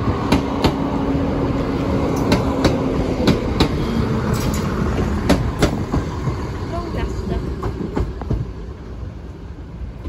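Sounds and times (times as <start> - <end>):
train wheels rumbling on rail: 0.0 - 10.0
wheels clicking over rail joints: 2.1 - 8.6.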